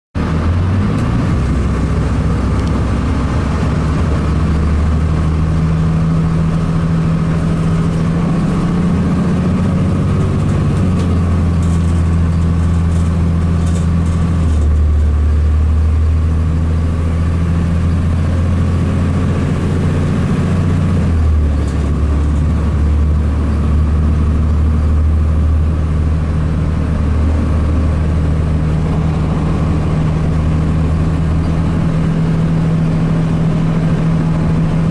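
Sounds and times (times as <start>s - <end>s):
bus diesel engine running: 0.2s - 34.9s.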